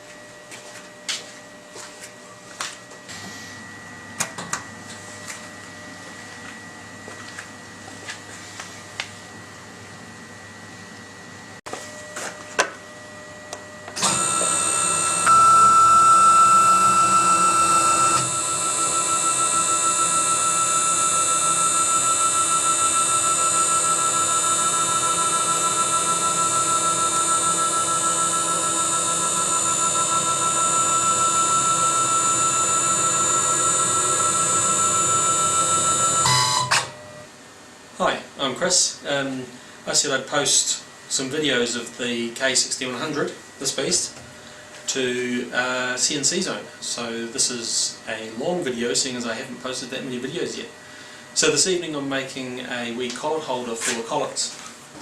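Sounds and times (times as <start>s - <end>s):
router spindle high whine: 11.9s - 37.3s.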